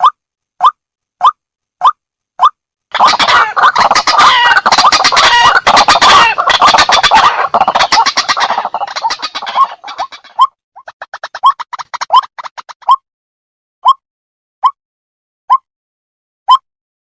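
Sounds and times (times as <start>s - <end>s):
waterhen calling: 2.9s - 12.7s.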